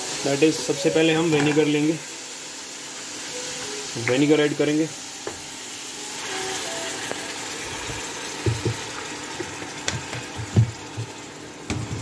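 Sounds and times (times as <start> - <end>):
vegetables sizzling in a pot: 0.0 - 12.0
wooden spatula knocking on pot: 8.4 - 8.8.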